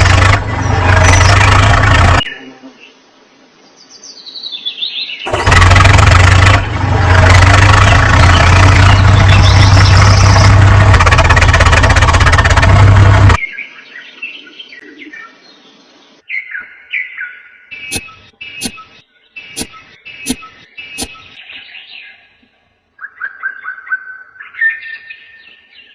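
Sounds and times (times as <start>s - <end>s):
tractor engine running: 0.0s - 2.3s, 5.3s - 13.4s
bird chirping: 0.3s - 5.3s, 7.6s - 10.8s, 13.4s - 25.9s.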